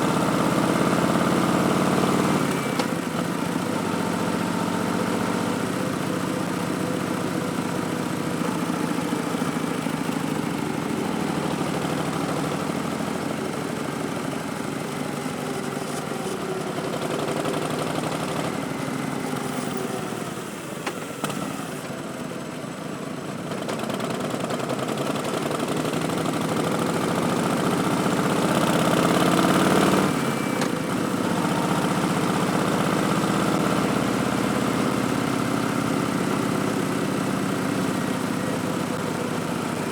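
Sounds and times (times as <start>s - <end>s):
motorcycle engine revving: 0.0s - 22.0s, 23.4s - 39.9s.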